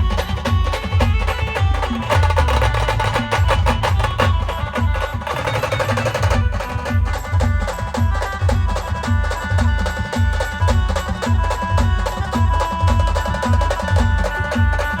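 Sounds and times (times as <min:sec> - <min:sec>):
driving drum beat: 0:00.0 - 0:15.0.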